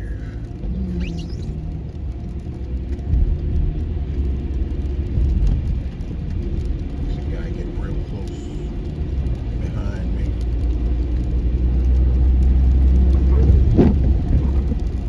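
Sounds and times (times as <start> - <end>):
car engine rumble: 0.0 - 15.0
tyres on slushy road: 0.0 - 15.0
high squeak: 0.9 - 1.6.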